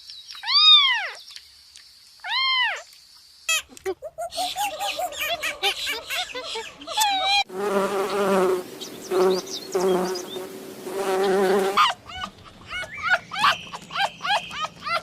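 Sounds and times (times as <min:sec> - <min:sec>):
flying insect buzzing: 0:07.5 - 0:11.8.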